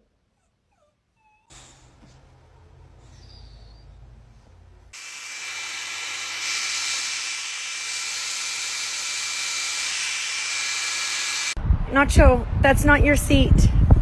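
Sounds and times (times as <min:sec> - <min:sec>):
steady hiss: 0:05.0 - 0:11.6.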